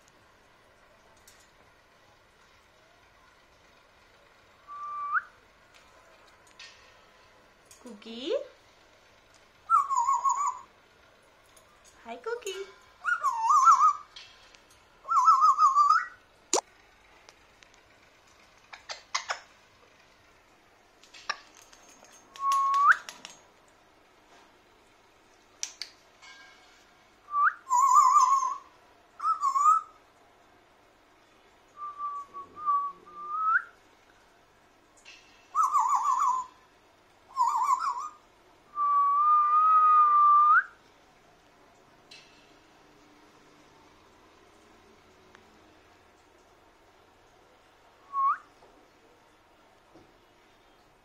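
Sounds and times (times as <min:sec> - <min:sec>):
parrot whistling: 0:09.7 - 0:10.7, 0:13.0 - 0:14.1, 0:15.0 - 0:16.2, 0:27.3 - 0:30.0, 0:35.6 - 0:36.5, 0:37.3 - 0:38.2
sharp clicks: 0:25.6 - 0:26.0.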